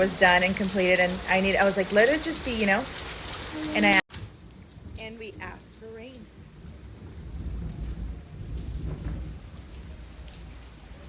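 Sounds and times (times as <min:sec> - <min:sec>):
rain falling: 0:00.0 - 0:11.0
low thunder rumble: 0:03.8 - 0:11.0.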